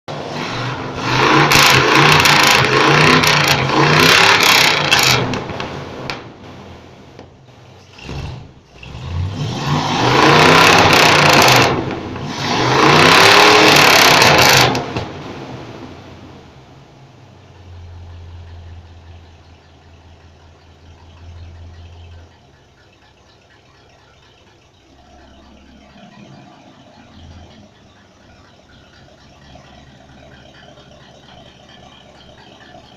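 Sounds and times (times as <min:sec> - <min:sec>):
car engine revving roughly: 0:00.1 - 0:06.8, 0:07.8 - 0:16.5.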